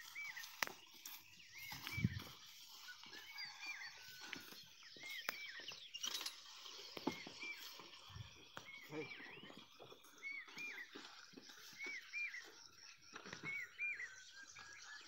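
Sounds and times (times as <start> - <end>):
rustling in grass: 0.0 - 8.9.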